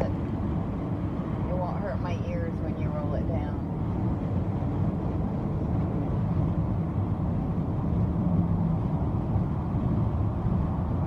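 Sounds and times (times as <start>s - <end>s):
car road and wind rumble: 0.0s - 11.0s.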